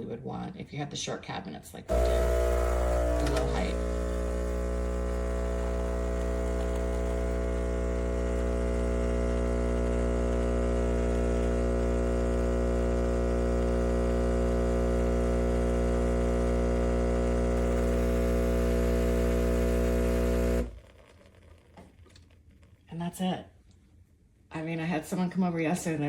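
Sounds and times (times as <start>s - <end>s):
espresso machine pump humming: 1.9s - 21.5s.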